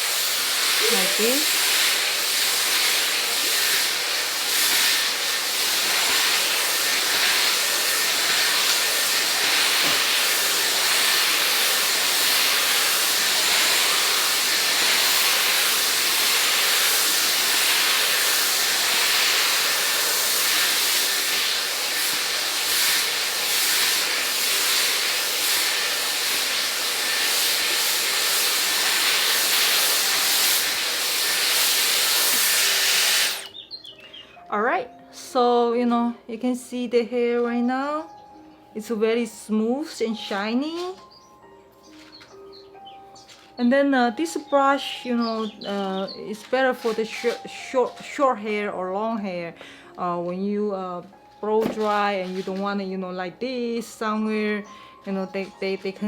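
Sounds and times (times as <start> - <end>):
hair dryer blowing: 0.0 - 33.6, 45.2 - 47.5.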